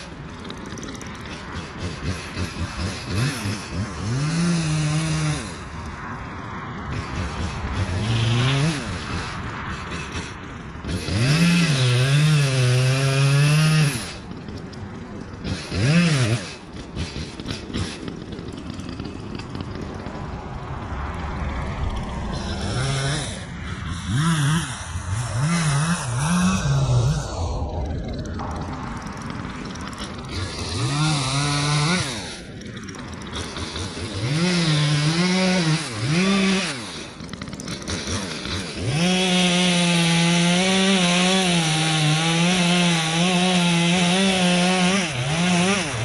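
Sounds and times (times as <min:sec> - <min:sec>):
chainsaw revving: 0:00.0 - 0:21.0, 0:21.9 - 0:46.0.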